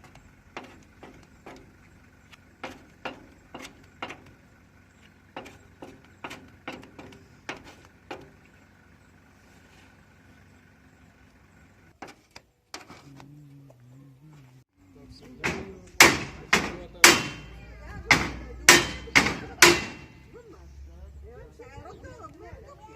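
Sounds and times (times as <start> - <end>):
light irregular knocks: 0.0 - 4.4, 5.0 - 8.4.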